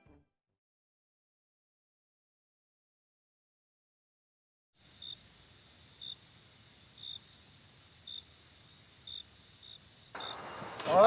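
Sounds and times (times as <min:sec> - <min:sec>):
crickets trilling: 0:04.8 - 0:11.0
short cricket chirp: 0:08.0 - 0:11.0.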